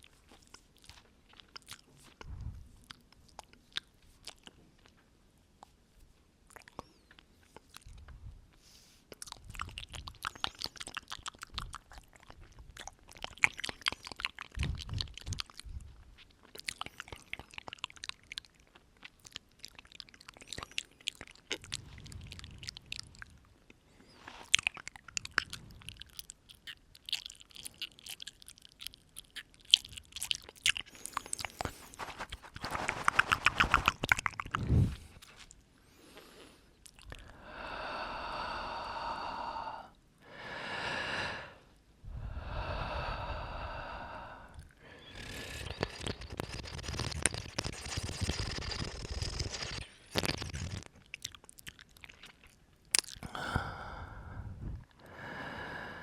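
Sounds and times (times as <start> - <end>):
wet mouth clicks and smacks: 0.0 - 5.0, 6.5 - 8.1, 9.1 - 23.8, 24.4 - 35.6, 36.2 - 37.3, 44.5 - 53.6
breaths blown into microphone: 31.1 - 35.3, 40.9 - 50.9.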